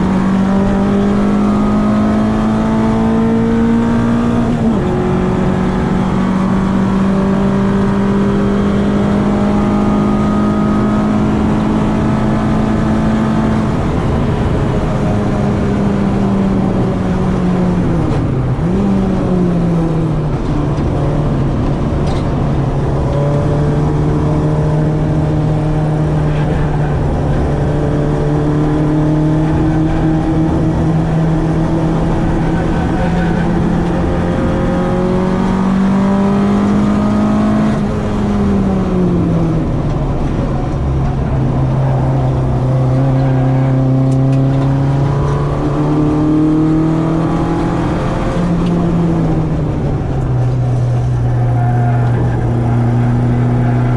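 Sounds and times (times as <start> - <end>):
car engine at high revs: 0.0 - 53.9.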